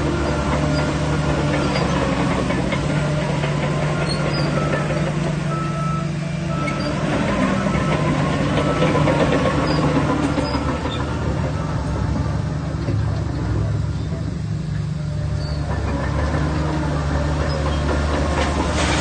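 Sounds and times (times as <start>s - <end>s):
bulldozer diesel engine running: 0.0s - 19.0s
steel tracks clanking: 0.0s - 19.0s
short squeaks: 4.0s - 5.0s, 15.3s - 15.9s.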